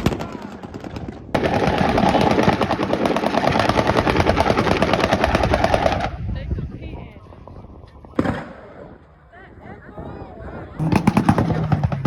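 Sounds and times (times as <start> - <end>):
exhaust popping and crackling: 10.8 - 12.0.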